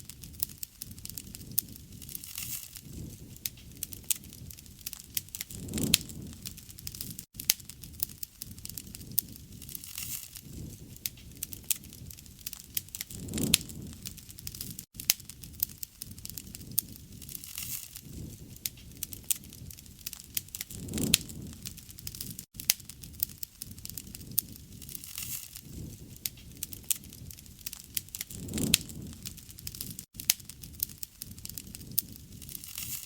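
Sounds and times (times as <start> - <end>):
low rush of flame: 0.0 - 33.0
wood fire crackling and popping: 0.0 - 33.0.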